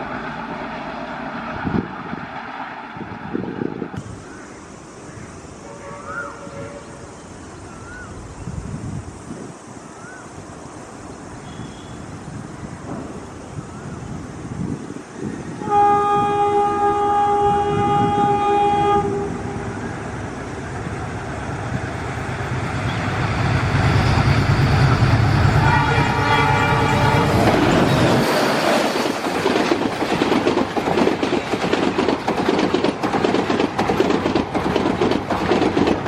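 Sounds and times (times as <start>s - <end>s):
locomotive horn: 5.6s - 7.0s, 15.6s - 19.8s, 25.4s - 28.1s
locomotive rumble: 15.6s - 36.0s.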